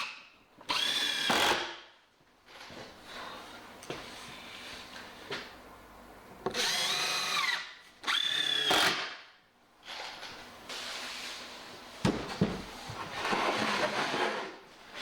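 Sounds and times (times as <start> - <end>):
power drill motor whirring: 6.5 - 9.0.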